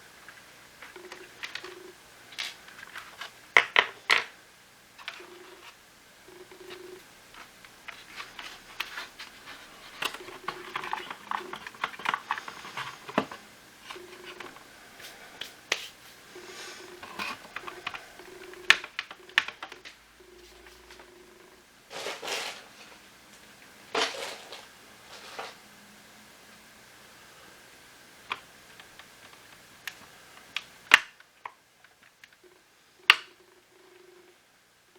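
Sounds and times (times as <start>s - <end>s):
plastic parts clicking and scraping: 6.7s - 14.6s.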